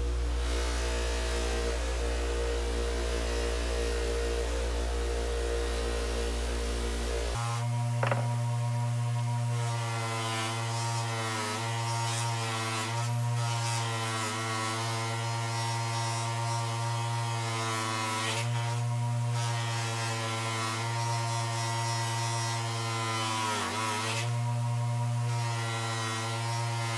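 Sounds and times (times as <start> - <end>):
power tool motor humming: 0.0 - 8.6.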